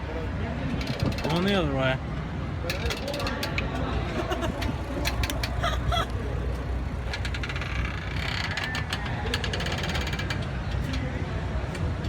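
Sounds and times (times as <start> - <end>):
low wind rumble on microphone: 0.0 - 12.0
mechanical clicking and ratcheting: 6.7 - 10.5.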